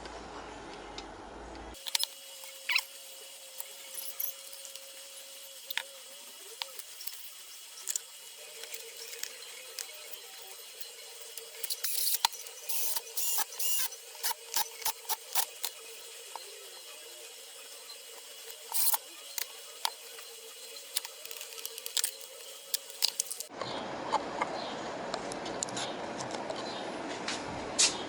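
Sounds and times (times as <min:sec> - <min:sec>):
small metal parts clicking: 0:01.8 - 0:02.8, 0:06.6 - 0:15.8, 0:18.2 - 0:23.5.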